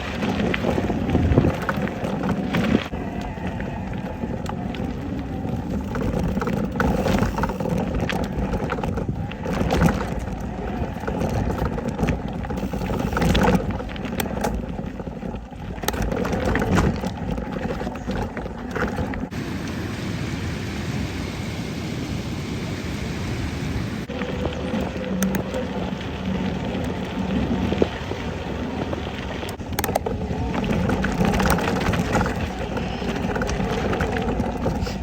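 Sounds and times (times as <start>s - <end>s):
bicycle knocks and rattles: 0.0s - 2.9s, 4.4s - 19.4s, 28.8s - 35.0s
wind buffeting microphone: 0.0s - 20.5s, 22.4s - 35.0s.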